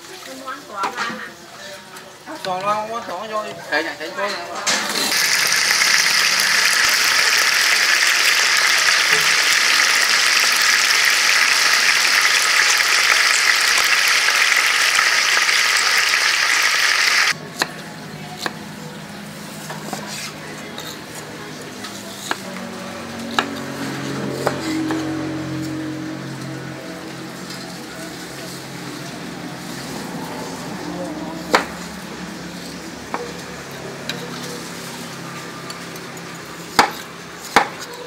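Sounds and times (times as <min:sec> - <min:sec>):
chicken sizzling in hot oil: 0:05.0 - 0:17.4.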